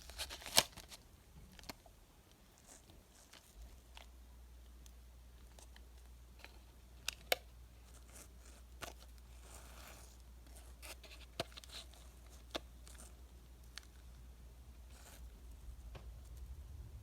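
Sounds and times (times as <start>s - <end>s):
sharp wrapper crackles: 0.0s - 1.0s
plastic wrapper crinkling: 0.0s - 1.9s
steady low hum: 12.0s - 17.0s.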